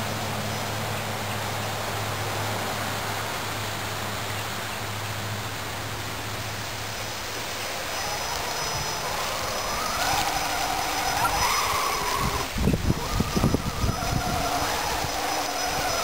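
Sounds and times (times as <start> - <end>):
steady hiss: 0.0 - 16.0
toy truck motor whining: 7.6 - 16.0.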